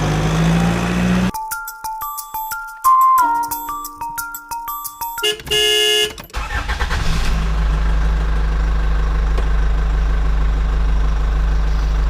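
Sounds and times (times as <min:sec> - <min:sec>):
vehicle engine starting and idling: 0:05.5 - 0:12.0.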